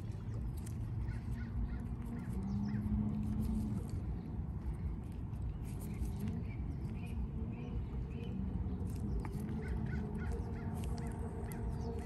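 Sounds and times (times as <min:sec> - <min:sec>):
bird calling: 0:09.2 - 0:12.0.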